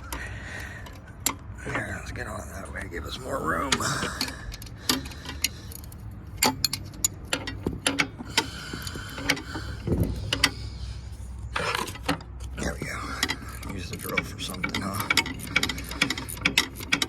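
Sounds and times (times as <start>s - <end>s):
wrench clicking on bolt: 3.7s - 10.7s, 11.6s - 17.0s.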